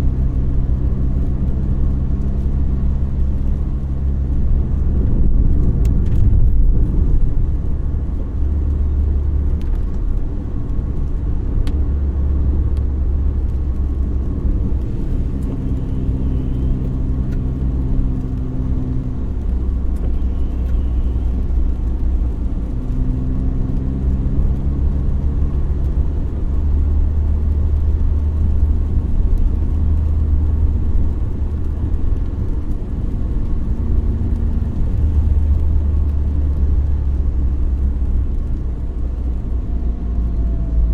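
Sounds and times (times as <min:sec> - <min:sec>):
engine hum: 0:00.0 - 0:40.9
road and engine rumble: 0:00.0 - 0:40.9.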